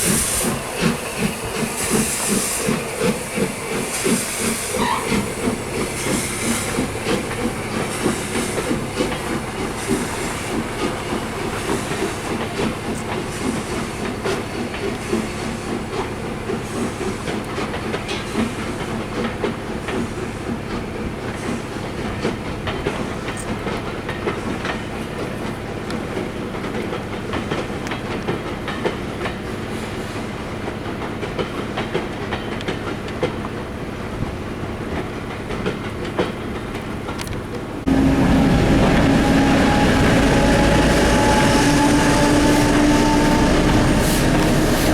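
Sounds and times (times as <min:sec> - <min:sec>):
steam locomotive puffing exhaust: 0:00.0 - 0:23.3, 0:37.8 - 0:44.9
carriage wheels clickety-clack: 0:00.1 - 0:33.7.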